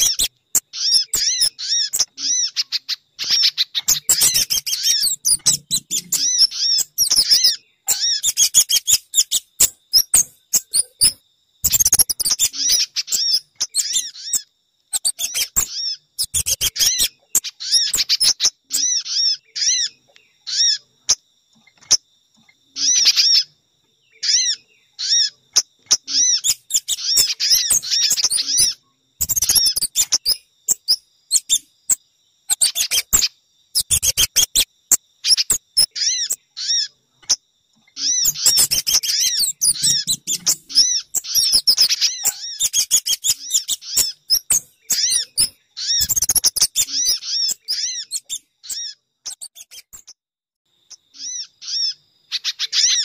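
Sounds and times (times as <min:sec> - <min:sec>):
songbird rapid high chirps: 0:00.0 - 0:50.2, 0:50.8 - 0:53.0.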